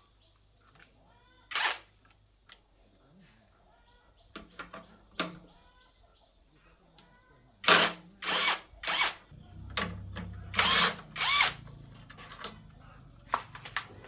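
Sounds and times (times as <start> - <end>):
handheld power tool bursts: 1.5 - 1.9, 7.6 - 9.2, 10.5 - 11.6.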